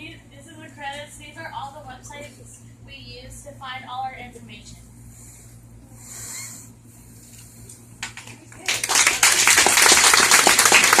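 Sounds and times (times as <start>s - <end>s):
scattered hand claps: 8.0s - 11.0s
audience applause: 8.1s - 11.0s.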